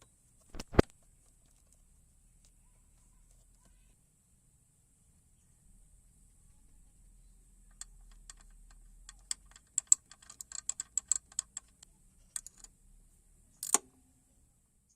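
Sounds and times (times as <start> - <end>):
sharp clicks and taps: 7.7 - 12.7.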